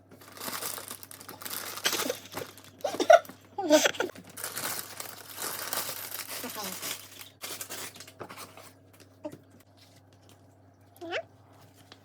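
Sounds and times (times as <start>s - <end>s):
packaging crinkling and tearing: 0.2s - 3.3s, 4.1s - 8.8s.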